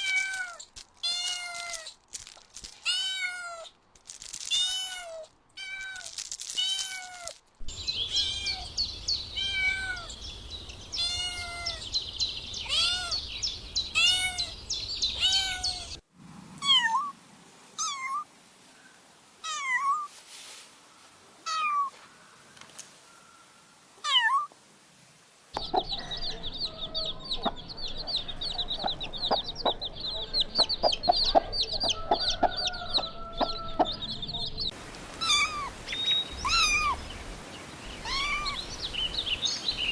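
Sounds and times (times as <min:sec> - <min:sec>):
kittens meowing: 0:08.1 - 0:10.1, 0:10.9 - 0:11.8, 0:12.6 - 0:13.2, 0:13.9 - 0:16.0, 0:35.2 - 0:35.7, 0:36.4 - 0:37.1, 0:38.0 - 0:38.6.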